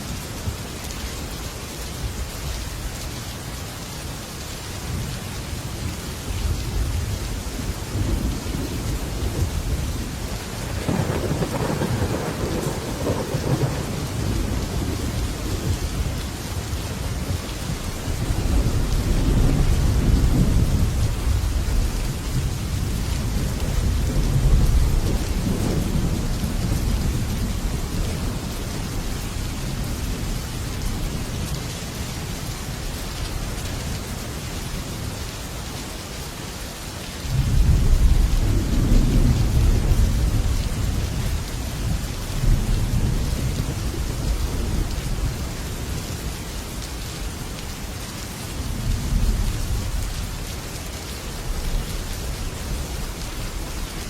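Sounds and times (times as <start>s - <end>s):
heavy rain on a metal roof: 0.0s - 54.0s
rolling thunder: 6.4s - 31.3s, 37.3s - 45.6s.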